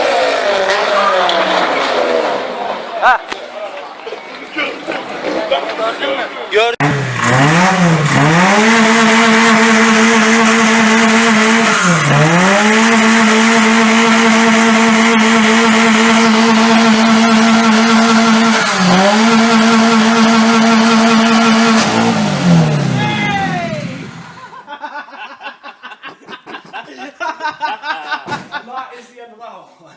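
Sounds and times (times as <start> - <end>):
car engine revving: 6.8 - 24.6.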